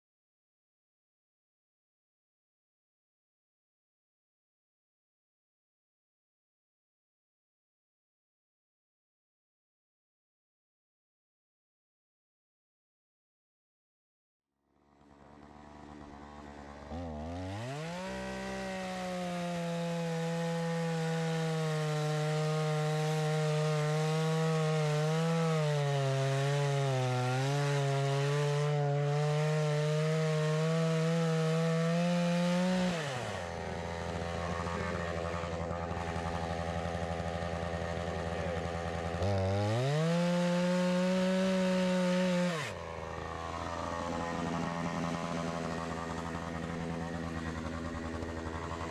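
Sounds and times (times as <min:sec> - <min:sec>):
chainsaw cutting wood: 0:14.8 - 0:48.9
chainsaw idling: 0:14.8 - 0:48.9.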